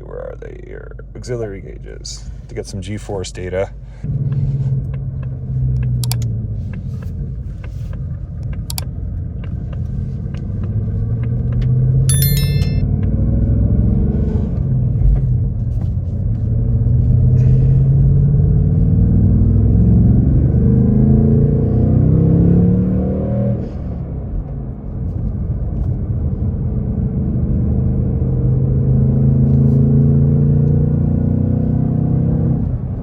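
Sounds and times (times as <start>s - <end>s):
sharp clicks: 5.8s - 6.3s
high electronic tone: 12.1s - 12.8s.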